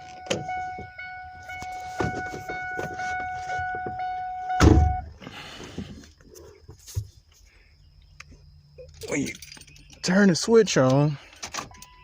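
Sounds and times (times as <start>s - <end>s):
dashboard warning chime: 0.0s - 5.2s, 11.7s - 12.0s
loud thunk: 4.6s - 5.0s.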